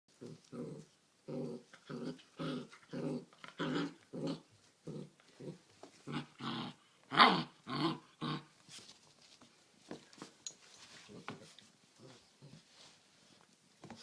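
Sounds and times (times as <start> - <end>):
puppies play-growling: 0.1 - 8.5.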